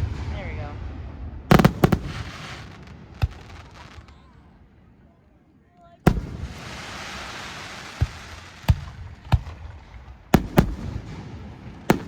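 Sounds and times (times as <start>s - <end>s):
firework shells bursting: 1.5s - 4.1s, 6.1s - 12.0s
hissing crackle: 1.5s - 4.1s, 6.1s - 9.0s.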